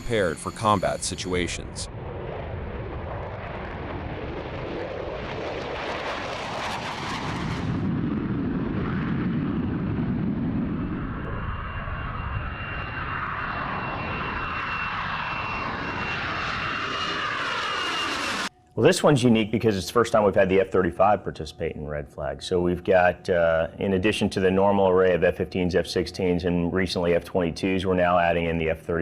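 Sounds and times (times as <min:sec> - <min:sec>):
jet engines rushing: 0:00.0 - 0:21.1
steady high whine: 0:00.0 - 0:29.0.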